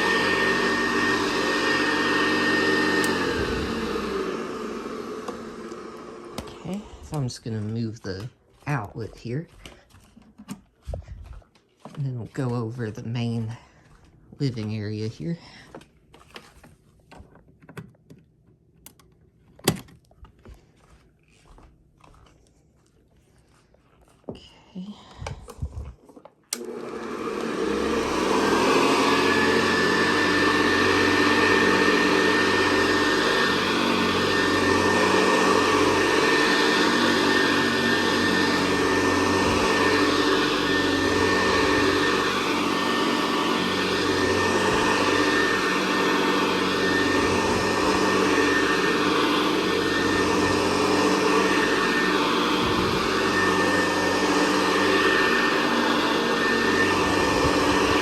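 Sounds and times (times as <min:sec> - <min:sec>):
vacuum cleaner motor whine: 0:00.0 - 0:09.8, 0:26.5 - 0:58.0.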